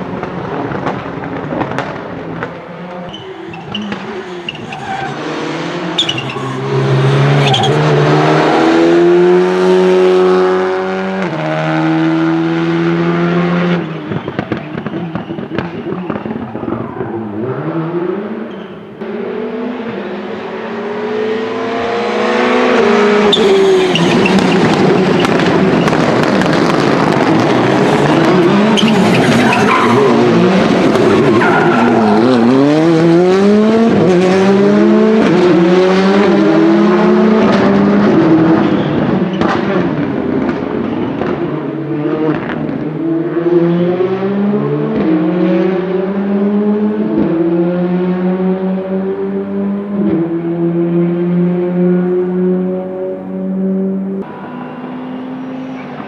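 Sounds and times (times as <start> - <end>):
exhaust crackles: 0.0 - 9.9, 23.1 - 34.6
rally car engines revving: 0.0 - 56.0
tyres squealing: 2.7 - 8.8, 23.2 - 33.0.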